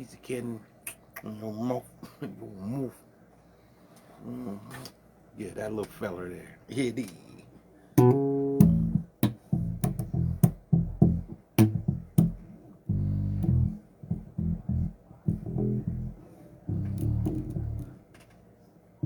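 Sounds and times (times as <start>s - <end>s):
bass guitar plucked notes: 8.0s - 18.0s.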